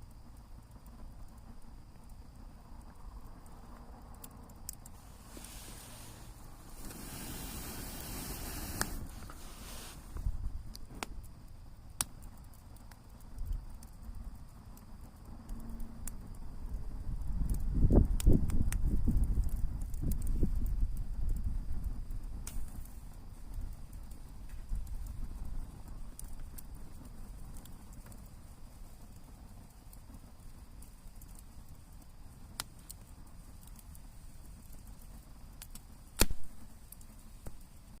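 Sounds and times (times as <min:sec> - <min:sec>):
low steady rumble: 0:00.0 - 0:35.3
campfire crackling: 0:00.0 - 0:38.0
fire popping and snapping: 0:00.0 - 0:38.0
steady hiss: 0:00.0 - 0:38.0
sharp pops: 0:35.6 - 0:37.7.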